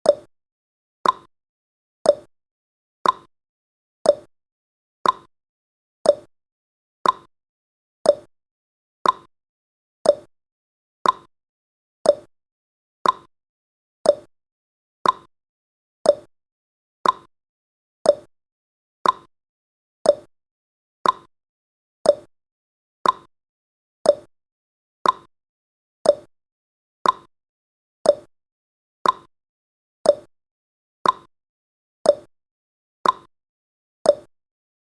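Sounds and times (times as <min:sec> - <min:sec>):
clock ticking: 0:01.0 - 0:01.3, 0:05.0 - 0:05.3, 0:07.0 - 0:07.3, 0:08.1 - 0:08.3, 0:09.0 - 0:09.3, 0:10.1 - 0:10.3, 0:11.0 - 0:11.3, 0:12.1 - 0:12.3, 0:13.0 - 0:13.3, 0:14.1 - 0:14.3, 0:15.0 - 0:15.3, 0:16.1 - 0:16.3, 0:17.0 - 0:17.3, 0:18.1 - 0:18.3, 0:19.0 - 0:19.3, 0:20.1 - 0:20.3, 0:21.0 - 0:21.3, 0:22.1 - 0:22.3, 0:23.0 - 0:23.3, 0:24.1 - 0:24.3, 0:25.0 - 0:25.3, 0:26.0 - 0:26.3, 0:27.0 - 0:27.3, 0:28.1 - 0:28.3, 0:29.0 - 0:29.3, 0:30.1 - 0:30.3, 0:31.0 - 0:31.3, 0:32.1 - 0:32.3, 0:33.0 - 0:33.3, 0:34.1 - 0:34.3.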